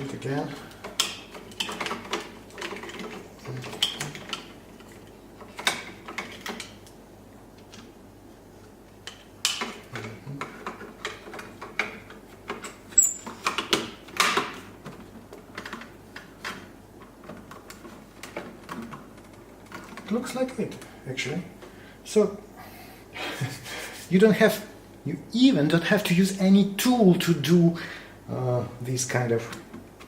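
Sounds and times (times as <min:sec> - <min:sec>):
plastic parts clicking and knocking: 0:00.0 - 0:06.9, 0:09.0 - 0:20.9.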